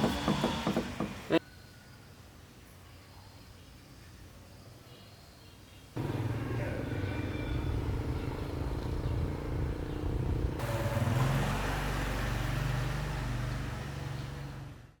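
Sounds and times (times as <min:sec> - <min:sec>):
truck engine droning: 0:06.0 - 0:14.8.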